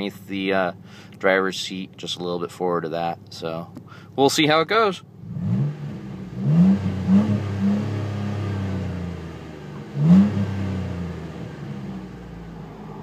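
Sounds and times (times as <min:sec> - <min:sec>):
car engine revving: 0:05.1 - 0:13.0.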